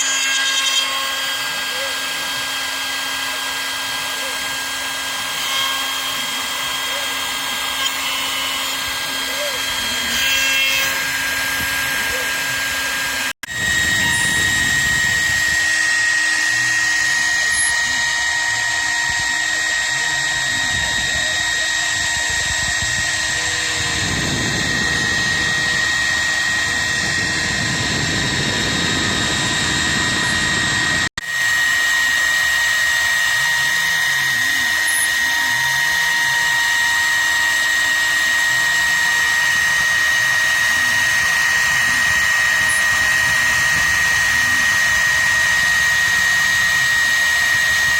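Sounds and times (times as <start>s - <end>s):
axis motors humming: 0.0s - 47.9s
router spindle whining: 0.0s - 47.9s.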